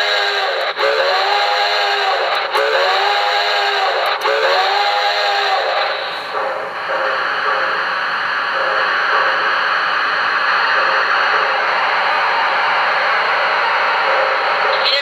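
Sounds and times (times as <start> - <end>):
chime steam whistle: 0.0 - 7.9
steam hissing: 0.0 - 15.0.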